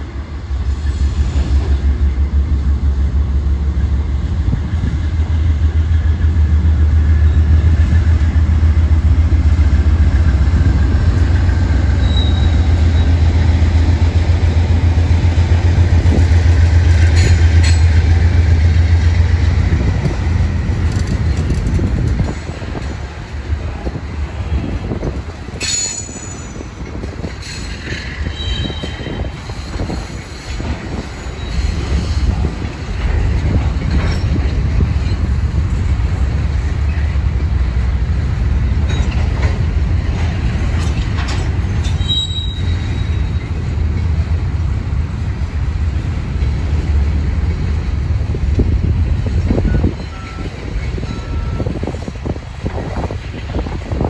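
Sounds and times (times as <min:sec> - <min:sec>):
train wheels rumbling on rail: 0:00.0 - 0:54.0
high wheel squeals: 0:11.8 - 0:13.3, 0:41.8 - 0:43.5, 0:49.6 - 0:51.8.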